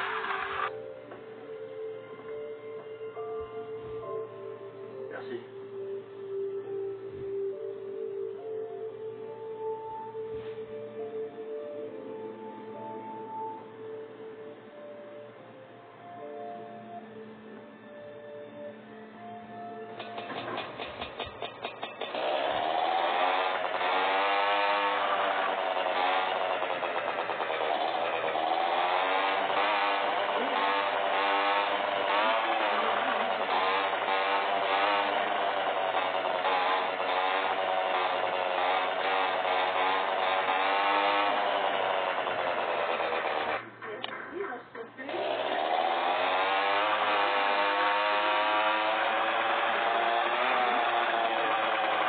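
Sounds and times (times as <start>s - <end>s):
motorcycle engines revving: 0.0s - 0.8s, 20.0s - 43.8s, 45.0s - 52.0s.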